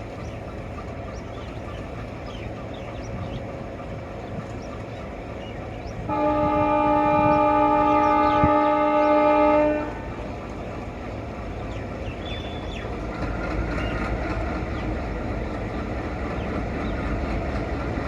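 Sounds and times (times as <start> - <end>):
train rumbling: 0.0 - 18.0
locomotive horn chord: 6.1 - 10.4.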